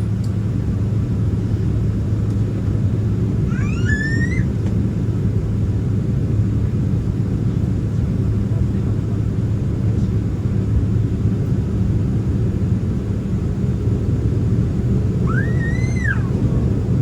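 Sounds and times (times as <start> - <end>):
airliner engines idling: 0.0 - 17.0
short rising squeal: 3.5 - 4.5, 15.2 - 16.4.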